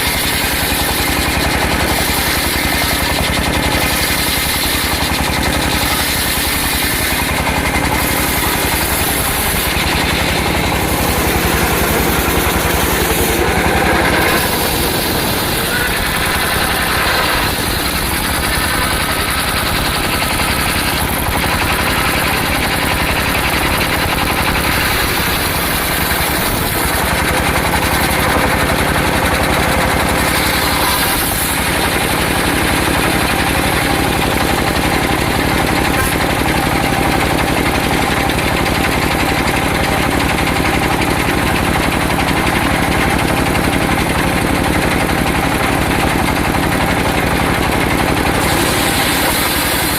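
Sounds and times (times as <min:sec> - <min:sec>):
sawmill engine running: 0:00.0 - 0:49.9.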